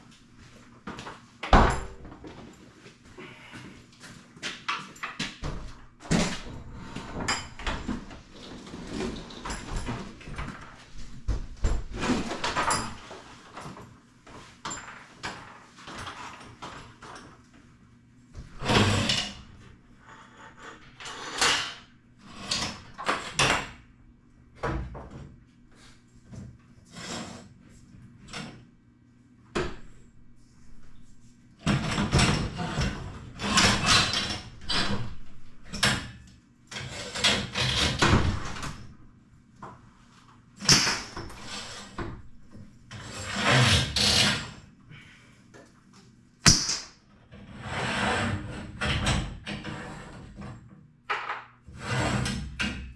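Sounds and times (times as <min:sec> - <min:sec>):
garage door hardware scraping and clanking: 0:18.6 - 0:23.8, 0:26.9 - 0:27.6, 0:31.6 - 0:38.9, 0:40.6 - 0:42.1, 0:42.9 - 0:44.6, 0:47.4 - 0:50.6, 0:51.7 - 0:52.9.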